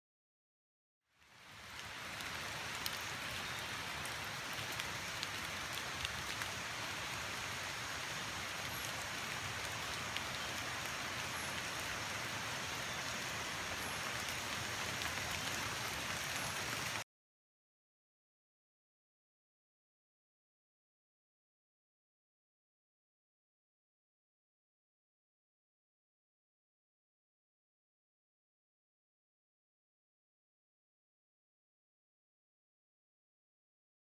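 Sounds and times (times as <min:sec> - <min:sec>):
steady rainfall: 0:01.1 - 0:17.0.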